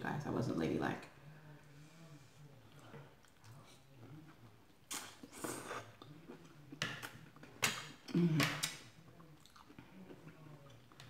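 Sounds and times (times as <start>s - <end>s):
close-miked chewing: 2.6s - 7.9s, 8.6s - 11.0s.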